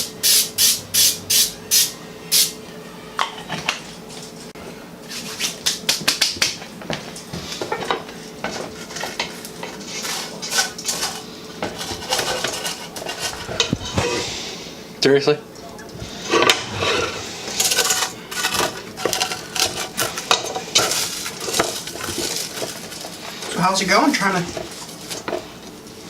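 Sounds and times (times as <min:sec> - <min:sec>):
spatula scraping a pot: 0:07.4 - 0:14.4, 0:16.0 - 0:23.6.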